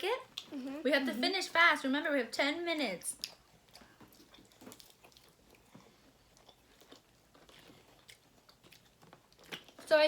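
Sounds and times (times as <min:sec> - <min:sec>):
chewing and crunching food: 0:03.1 - 0:10.0.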